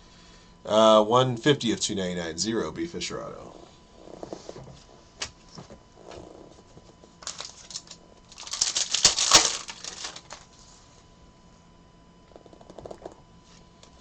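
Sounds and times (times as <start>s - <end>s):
trading cards being handled: 7.2s - 10.6s
wrapper crinkling: 7.2s - 10.6s.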